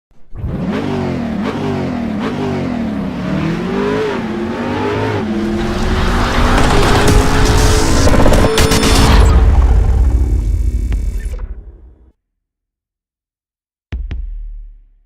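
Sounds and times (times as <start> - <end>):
car engine revving: 0.3 - 11.9.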